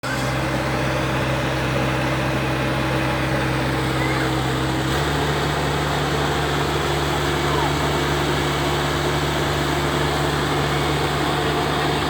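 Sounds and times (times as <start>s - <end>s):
threshing machine engine humming: 0.0s - 12.0s.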